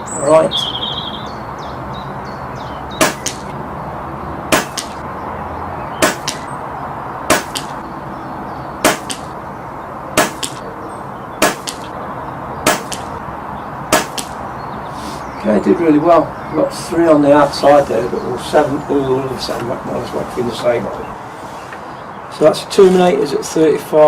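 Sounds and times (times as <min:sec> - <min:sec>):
air rifle shots cracking: 0:03.0 - 0:03.6, 0:04.5 - 0:05.0, 0:06.0 - 0:06.6, 0:07.3 - 0:07.8, 0:08.8 - 0:09.4, 0:10.2 - 0:10.7, 0:11.4 - 0:12.0, 0:12.6 - 0:13.2, 0:13.9 - 0:14.4.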